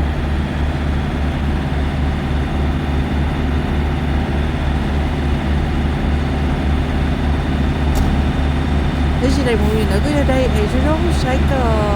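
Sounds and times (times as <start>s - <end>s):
truck diesel engine droning: 6.5s - 11.9s.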